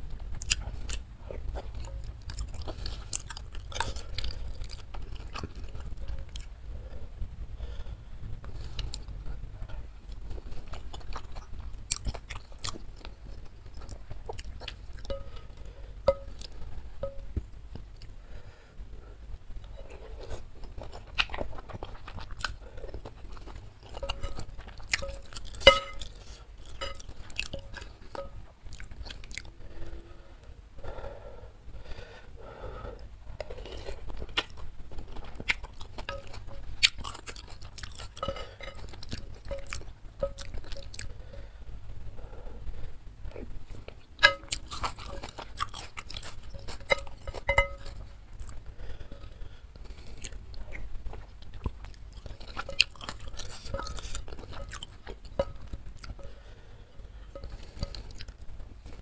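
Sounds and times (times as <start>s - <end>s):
chewing and lip-smacking: 0.3s - 6.6s, 8.4s - 15.5s, 19.8s - 29.5s, 33.4s - 41.1s, 43.3s - 48.6s, 49.8s - 56.4s, 57.3s - 59.0s.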